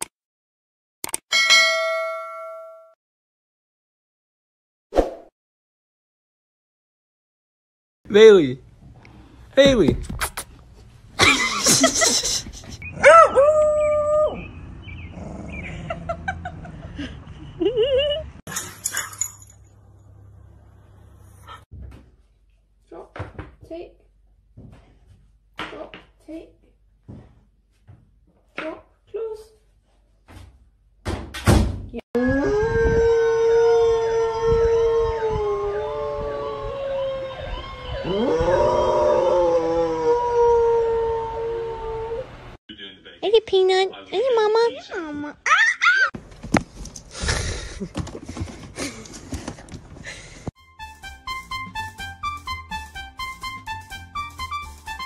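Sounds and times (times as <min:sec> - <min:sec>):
dog howling: 0:13.0 - 0:14.5, 0:32.2 - 0:42.4
fire truck siren from television: 0:35.3 - 0:39.1.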